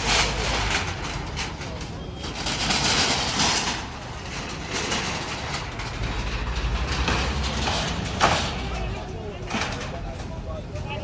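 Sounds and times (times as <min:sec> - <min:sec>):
motor vehicle running: 0:00.0 - 0:09.8
rushing outdoor noise: 0:00.0 - 0:11.0
steady low rumble: 0:05.2 - 0:09.0.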